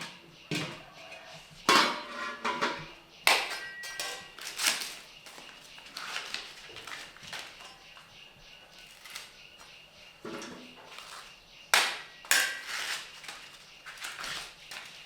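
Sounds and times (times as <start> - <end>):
metal pots knocking and ringing: 1.6 - 4.6, 11.8 - 13.4.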